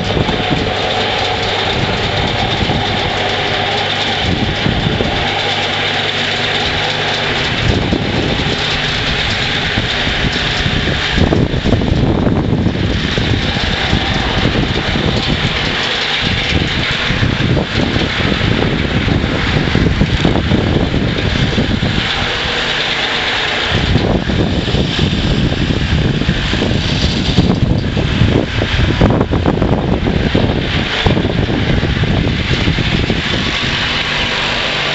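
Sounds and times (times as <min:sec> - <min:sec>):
garden tractor engine droning: 0:00.0 - 0:34.9
snowblower hiss: 0:00.0 - 0:34.9.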